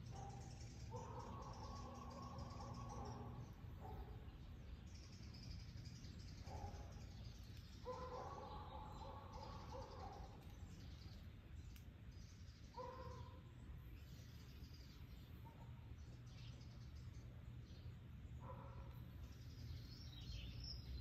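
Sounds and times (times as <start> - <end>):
faint high bird chirps: 0.0 - 21.0.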